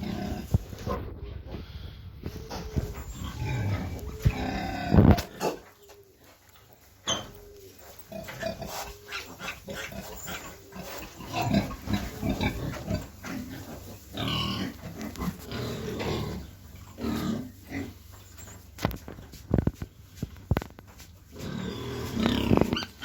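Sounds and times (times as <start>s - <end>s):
piglets squeaking and grunting: 2.3s - 6.2s, 7.0s - 18.7s, 21.3s - 23.0s.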